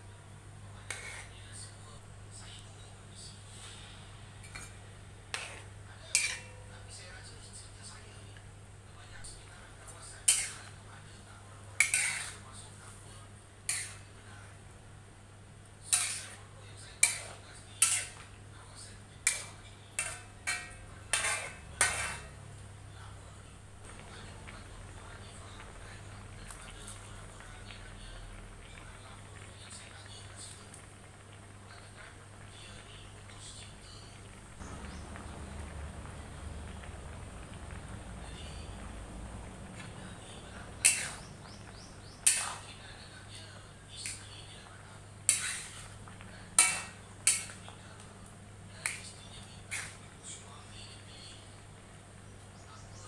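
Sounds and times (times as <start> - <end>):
metal utensil scraping a pot: 0.8 - 1.4, 3.5 - 6.9, 10.2 - 10.8, 11.7 - 14.6, 15.8 - 18.4, 19.2 - 22.5, 39.6 - 42.8, 44.0 - 44.5, 45.2 - 47.7, 48.8 - 50.2.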